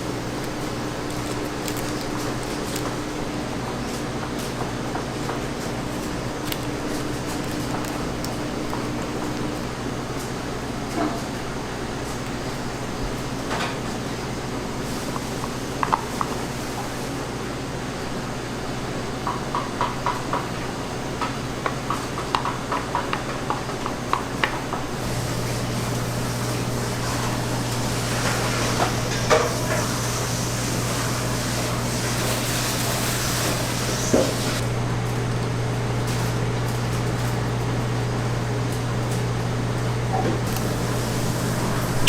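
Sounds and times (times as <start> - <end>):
low machine hum: 24.6 - 42.0
hiss: 25.0 - 34.6, 40.5 - 42.0.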